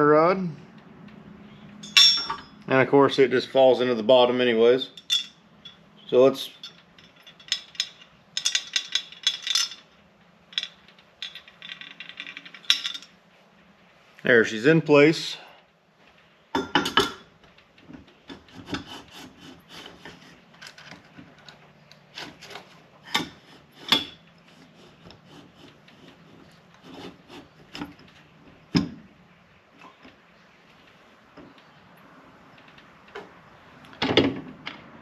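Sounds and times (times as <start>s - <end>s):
sharp metal knocks: 1.8s - 2.6s
metal parts scraping and rubbing: 5.0s - 13.2s, 18.1s - 28.7s.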